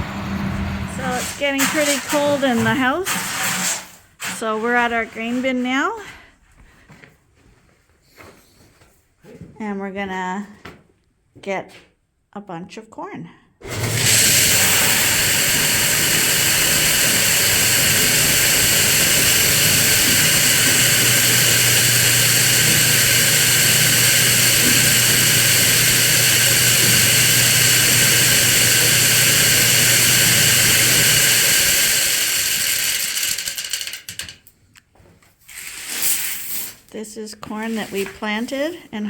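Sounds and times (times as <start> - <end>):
steady motor hum: 0.0 - 1.7, 13.6 - 34.2.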